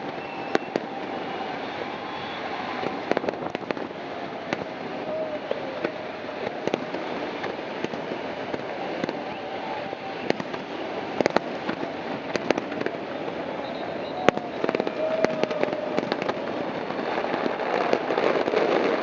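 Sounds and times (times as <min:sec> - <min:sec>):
fireworks banging: 0:00.0 - 0:19.0.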